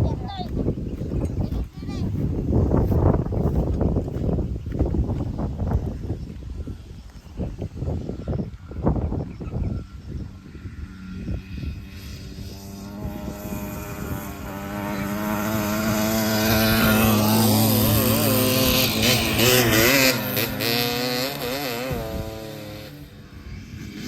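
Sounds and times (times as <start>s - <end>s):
dirt bike engine passing: 7.8s - 24.0s.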